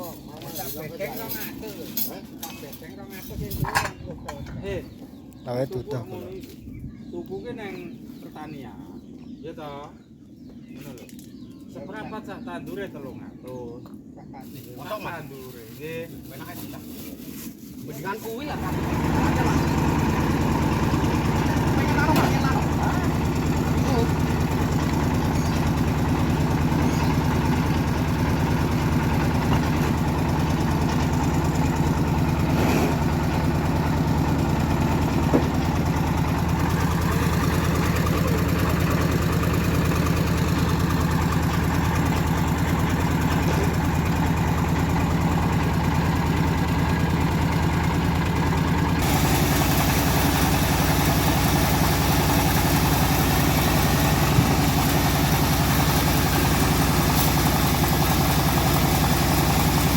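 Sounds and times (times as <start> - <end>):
engine idling: 18.1 - 59.9.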